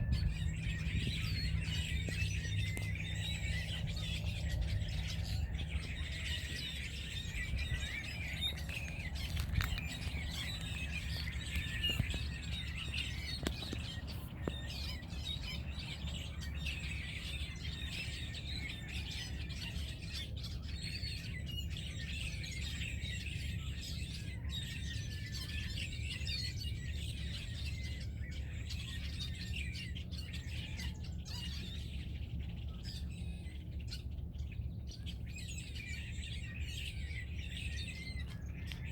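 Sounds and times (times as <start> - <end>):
steady low hum: 0.0 - 22.1
flock of birds chirping: 0.0 - 38.9.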